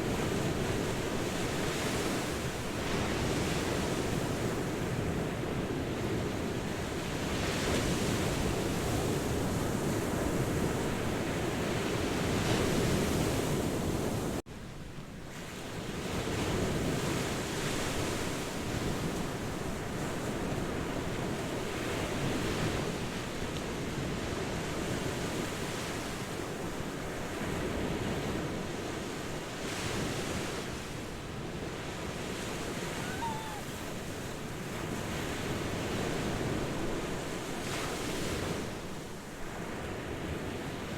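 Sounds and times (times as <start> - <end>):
ocean waves breaking: 29.5 - 40.8.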